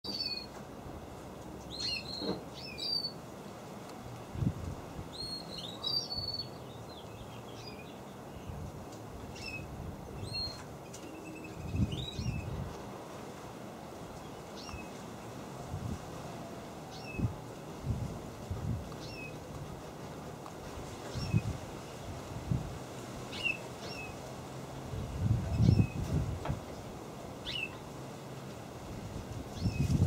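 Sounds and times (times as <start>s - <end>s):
small birds chirping: 0.0s - 0.6s, 1.6s - 3.3s, 5.1s - 12.7s, 14.1s - 15.4s, 16.9s - 17.4s, 18.9s - 19.6s, 20.9s - 22.5s, 23.2s - 27.9s, 29.5s - 30.0s.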